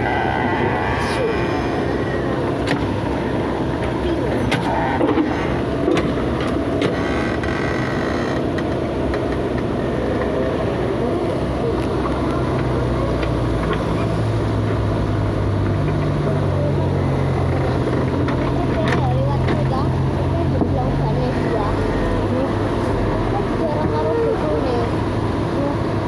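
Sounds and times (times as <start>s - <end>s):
diesel engine of heavy machinery: 0.0s - 26.0s.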